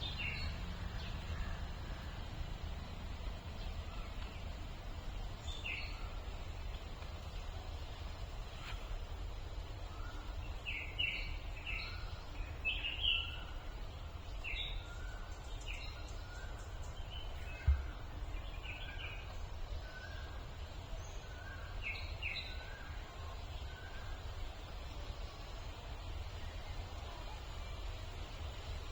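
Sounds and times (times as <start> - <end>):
birds chirping: 0.0 - 28.9
steady low rumble: 0.0 - 28.9
low thump: 17.6 - 18.0.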